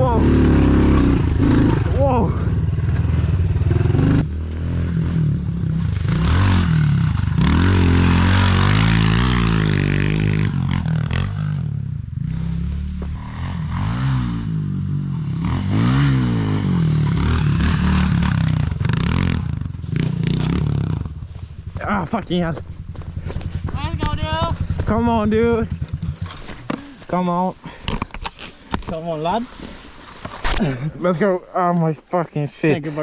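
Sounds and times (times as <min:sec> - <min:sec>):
pit bike engine revving: 0:00.0 - 0:21.3
wind and road noise: 0:00.0 - 0:31.0.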